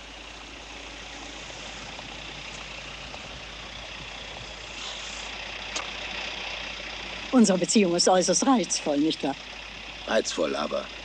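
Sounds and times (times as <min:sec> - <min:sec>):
car engine idling: 0:00.0 - 0:11.0
street traffic noise: 0:00.0 - 0:11.0.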